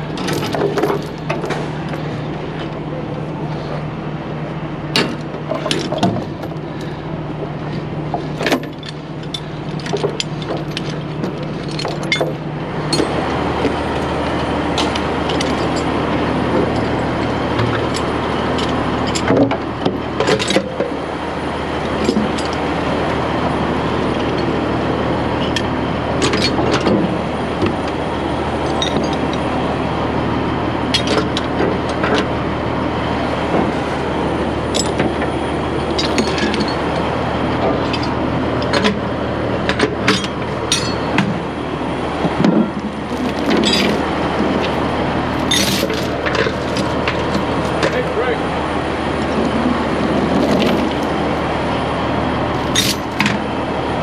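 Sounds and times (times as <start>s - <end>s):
heavy engine running: 0.0s - 54.0s
metallic clinks and knocks: 8.4s - 13.2s, 43.1s - 44.0s, 45.4s - 48.0s, 50.3s - 51.1s, 52.6s - 53.4s.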